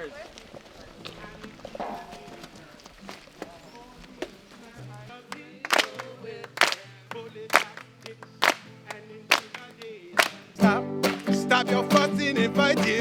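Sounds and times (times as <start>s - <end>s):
hand claps on a steady beat: 5.3s - 13.0s
guitar playing: 10.2s - 13.0s.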